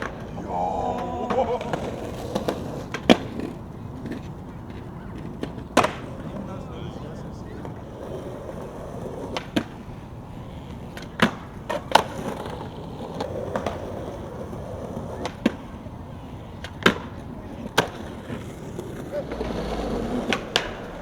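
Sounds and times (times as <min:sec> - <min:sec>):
skateboard clacking on ground: 0:00.0 - 0:06.5, 0:07.5 - 0:21.0
skateboard wheels rolling on pavement: 0:00.0 - 0:21.0.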